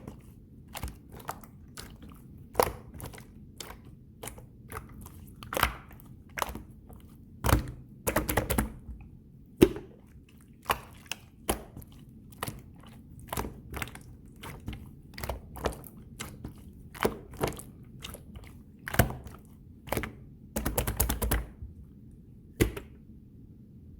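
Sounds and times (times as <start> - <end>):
slime squished by hand: 0.0 - 21.8.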